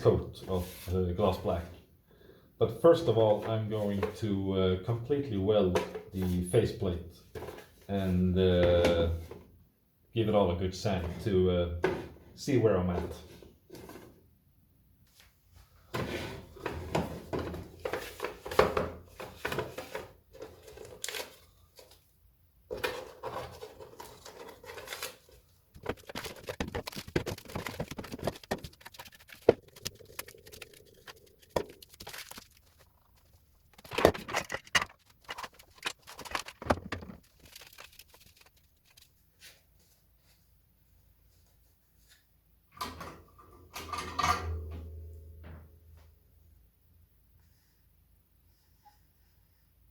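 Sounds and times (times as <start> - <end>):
scraping and rubbing plastic: 22.7 - 39.2.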